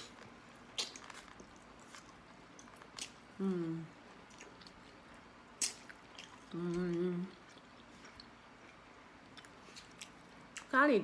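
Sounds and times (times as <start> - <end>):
person humming mmm: 3.4 - 4.0, 6.5 - 7.4.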